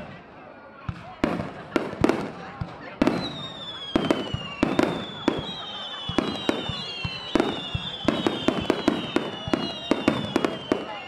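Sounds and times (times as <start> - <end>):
firework whistles sliding down: 3.2 - 11.0.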